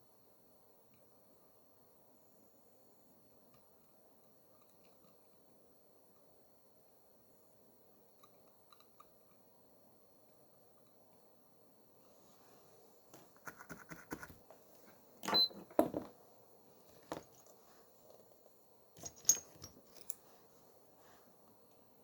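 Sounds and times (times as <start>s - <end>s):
tools and small parts clicking: 19.0s - 20.2s.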